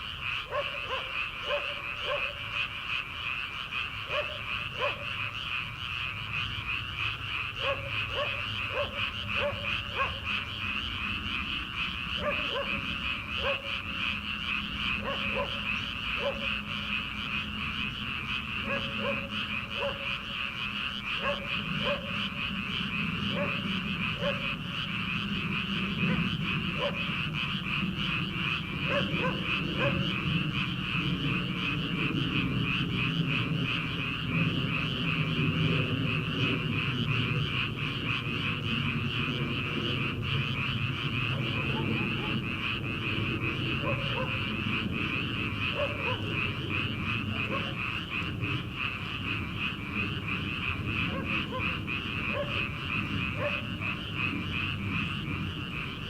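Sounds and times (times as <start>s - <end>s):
chorus of frogs trilling: 0.0s - 56.0s
short low frog calls: 0.0s - 56.0s.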